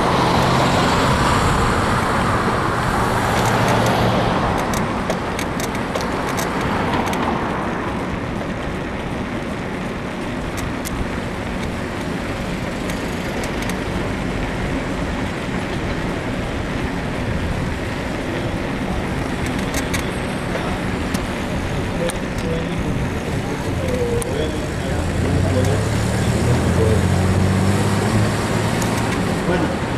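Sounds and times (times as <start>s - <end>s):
wind and road noise: 0.0s - 29.9s
bicycle frame clicks and creaks: 3.0s - 27.0s, 27.6s - 29.5s.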